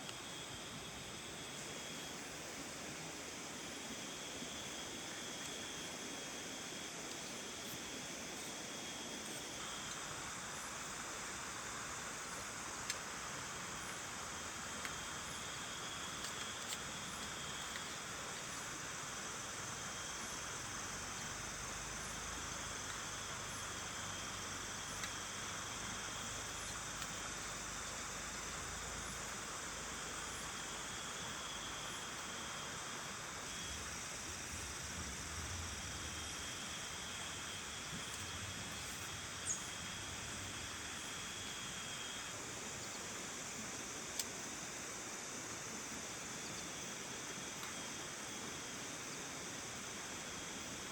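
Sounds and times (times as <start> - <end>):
insects trilling: 0.0 - 50.9
rain hiss: 0.0 - 50.9
faint ticks: 9.2 - 10.7, 12.2 - 18.7, 21.2 - 29.5, 44.0 - 44.6, 45.9 - 47.9.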